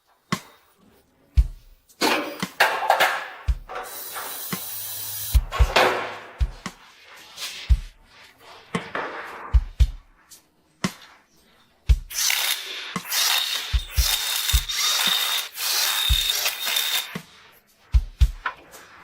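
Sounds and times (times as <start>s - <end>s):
background music with low thumps: 1.3s - 12.1s, 17.2s - 19.0s
power tool hissing and whistling: 3.9s - 5.5s, 12.1s - 17.2s.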